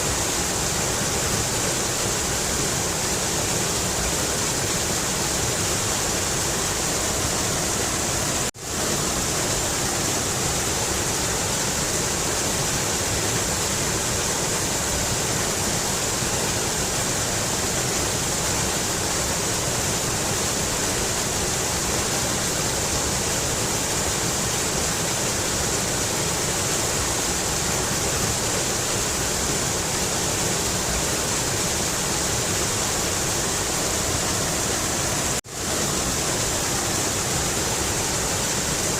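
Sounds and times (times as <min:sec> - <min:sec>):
river rushing: 0:00.0 - 0:38.9.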